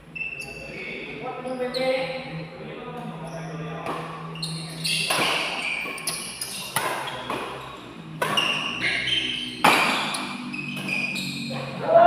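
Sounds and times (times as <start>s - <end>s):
rackets hitting shuttlecock: 4.9s - 7.6s, 8.2s - 11.6s.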